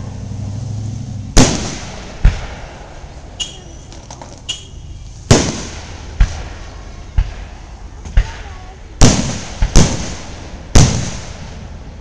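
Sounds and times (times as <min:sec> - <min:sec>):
fireworks booming: 0:01.2 - 0:12.0
fireworks crackle: 0:01.4 - 0:12.0
fireworks pops: 0:03.4 - 0:10.2.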